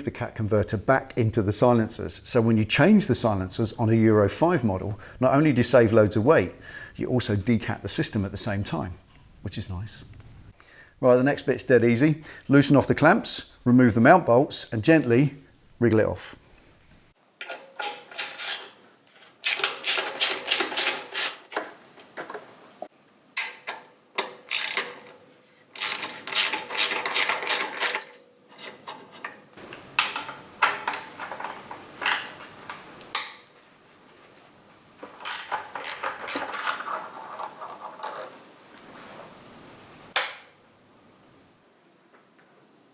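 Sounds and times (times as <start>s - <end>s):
hand ratchet clicking: 24.3s - 25.0s, 25.8s - 28.0s, 35.1s - 36.9s.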